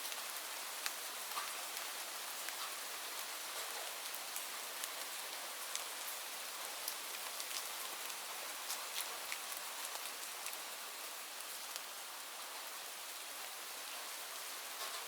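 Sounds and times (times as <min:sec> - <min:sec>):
raindrops ticking on a surface: 0:00.0 - 0:15.0
steady rain hiss: 0:00.0 - 0:15.0.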